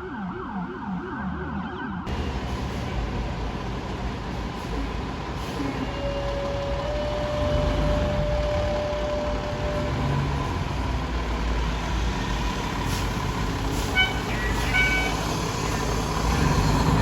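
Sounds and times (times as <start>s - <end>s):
truck diesel engine rumbling: 2.1s - 17.0s.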